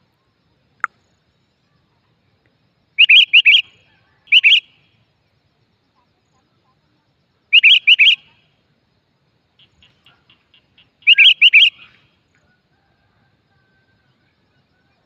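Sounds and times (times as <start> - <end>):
decoy bird chirps: 3.0 - 4.9, 7.5 - 8.4, 9.6 - 12.1.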